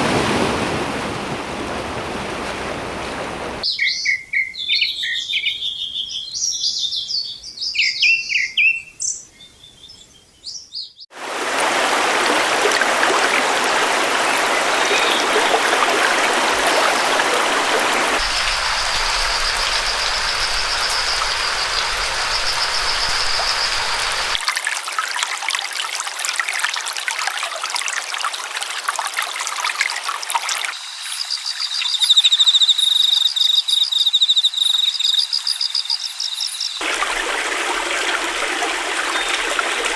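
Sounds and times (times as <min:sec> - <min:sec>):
stream flowing: 0:00.0 - 0:03.7, 0:11.1 - 0:39.9
small birds chirping: 0:03.6 - 0:11.1, 0:18.2 - 0:24.4, 0:30.8 - 0:36.8.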